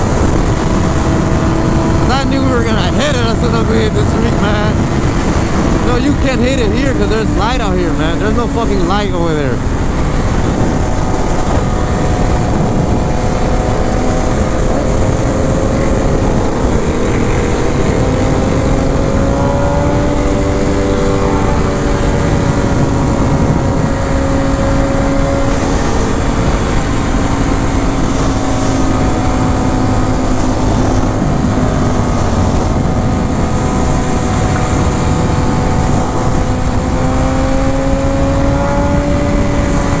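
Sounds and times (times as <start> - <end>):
motorcycle engine running: 0.0 - 40.0
wind and road noise: 0.0 - 40.0.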